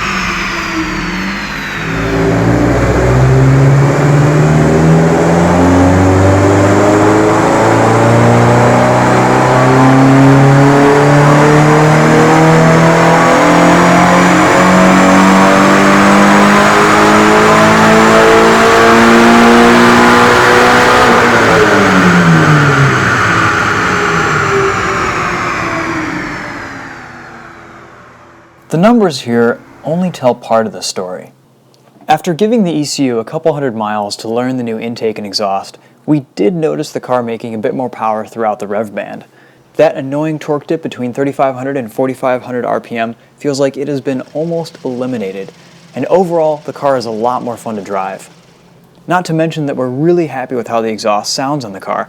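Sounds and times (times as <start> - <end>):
car engine revving at full throttle: 0.0 - 30.0, 43.6 - 49.3.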